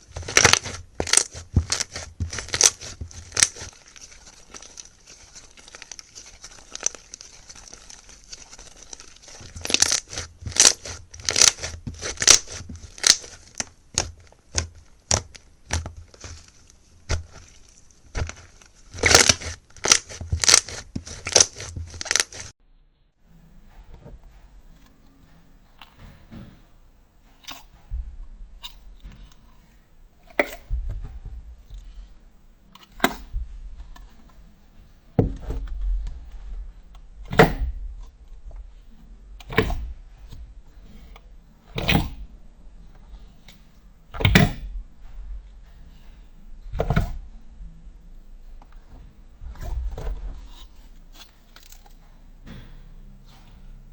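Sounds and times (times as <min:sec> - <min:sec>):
slime crackling and popping: 0:00.0 - 0:22.5
faint handling sounds: 0:00.0 - 0:53.9.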